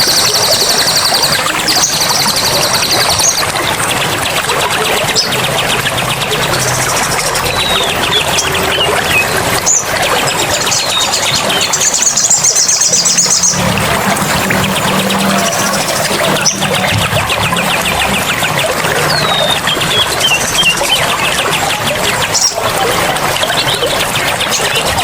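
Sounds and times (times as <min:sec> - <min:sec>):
running water: 0:00.0 - 0:25.0
songbirds singing: 0:00.0 - 0:25.0
buzzing bird trill: 0:10.8 - 0:22.6.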